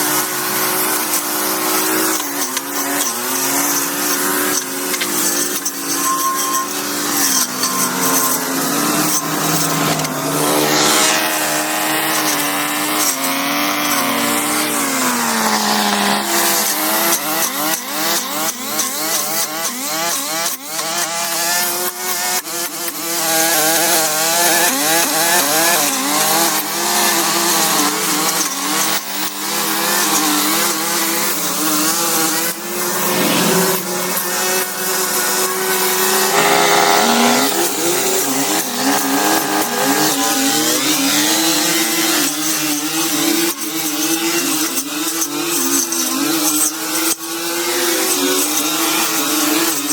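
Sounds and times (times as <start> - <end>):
small engine running: 0.0 - 49.9.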